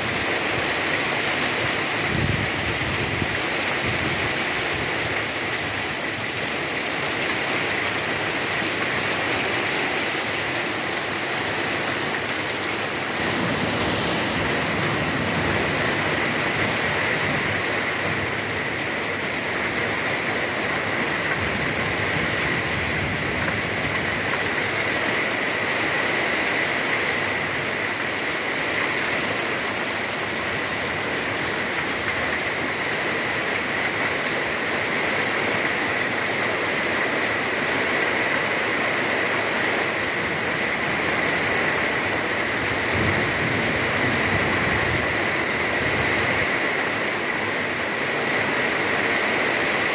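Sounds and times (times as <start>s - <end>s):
heavy rain pouring: 0.0s - 49.9s.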